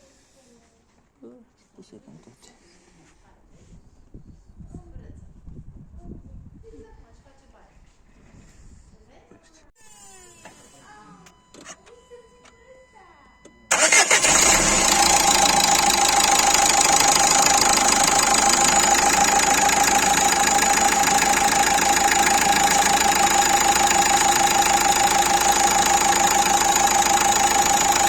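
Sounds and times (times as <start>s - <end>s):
diesel engine idling: 13.7s - 28.0s.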